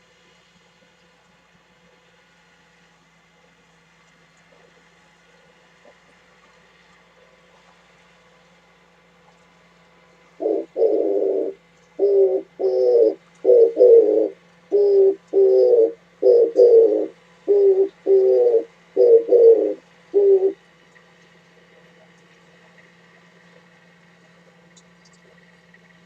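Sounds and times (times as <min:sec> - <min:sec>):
dove cooing: 0:10.4 - 0:20.6.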